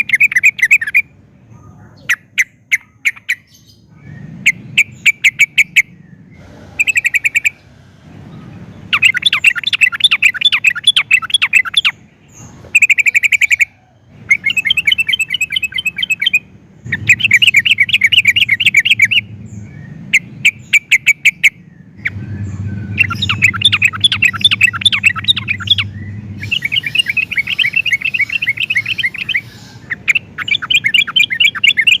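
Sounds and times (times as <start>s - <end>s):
bulbul singing bubbling phrases: 22.9s - 32.0s.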